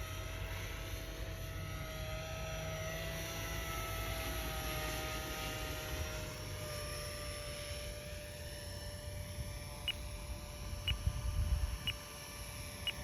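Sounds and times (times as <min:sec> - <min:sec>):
model helicopter motor and rotor whine: 0:00.0 - 0:13.0
wind rumbling on microphone: 0:07.9 - 0:13.0.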